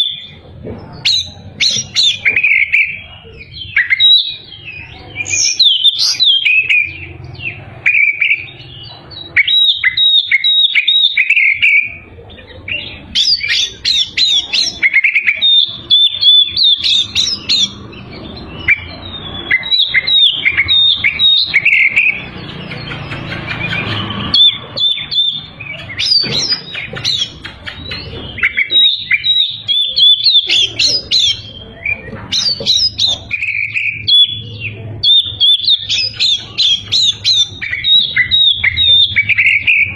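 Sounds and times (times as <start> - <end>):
songbird whistles and trills: 0.0 - 39.9.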